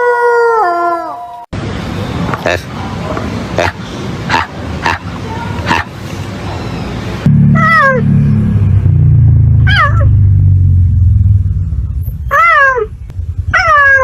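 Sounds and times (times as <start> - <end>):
low rumble: 7.2 - 14.0.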